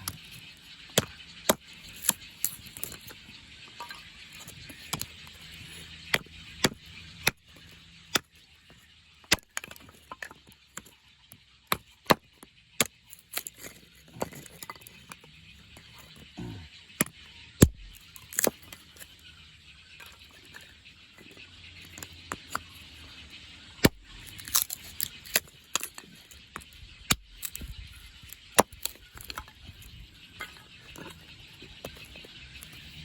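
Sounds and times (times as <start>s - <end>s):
hatchet chopping wood: 0.9s - 3.0s, 5.7s - 7.4s, 8.1s - 8.4s, 11.7s - 14.5s, 17.0s - 18.6s, 23.8s - 26.0s, 26.6s - 29.5s.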